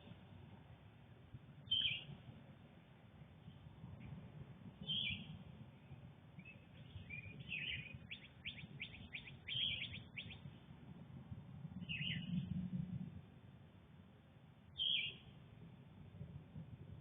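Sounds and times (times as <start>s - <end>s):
low steady rumble: 0.0s - 17.0s
songbirds calling and singing: 1.6s - 2.2s, 4.8s - 10.7s, 11.8s - 12.6s, 14.8s - 15.3s.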